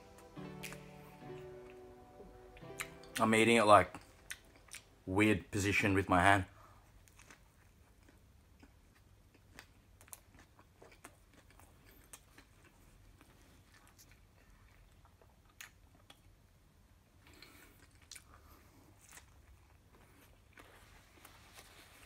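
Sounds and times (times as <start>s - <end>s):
chewing and biting food: 7.0s - 16.4s, 17.3s - 21.4s.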